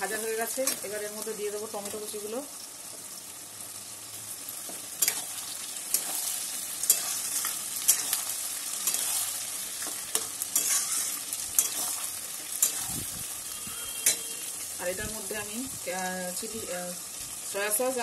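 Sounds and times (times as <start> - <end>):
vegetables sizzling in hot oil: 0.0 - 18.0
metal spatula scraping a wok: 5.0 - 13.2, 13.9 - 14.4.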